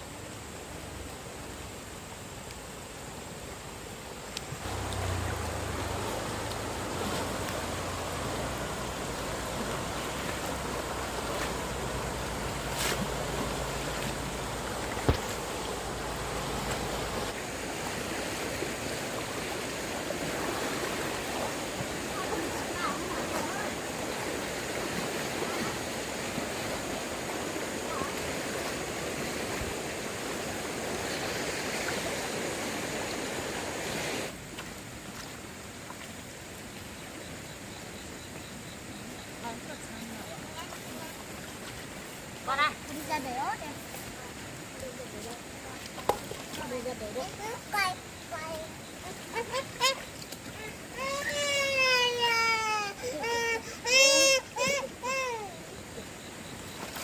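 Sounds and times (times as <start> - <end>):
flooded stream rushing: 0.0 - 57.0.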